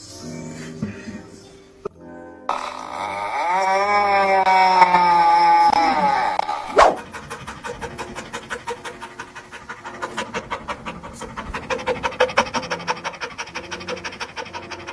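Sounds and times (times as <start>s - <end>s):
dog panting: 6.7s - 14.9s.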